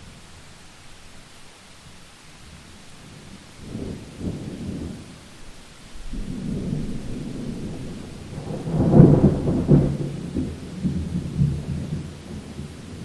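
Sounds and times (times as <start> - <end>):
steady rain: 0.0 - 13.0
thunder rumbling and cracking: 6.0 - 13.0.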